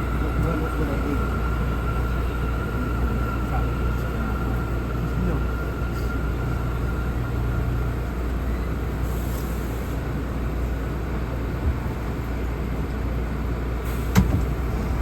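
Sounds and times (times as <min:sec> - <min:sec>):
subway car rumble and hum: 0:00.0 - 0:15.0.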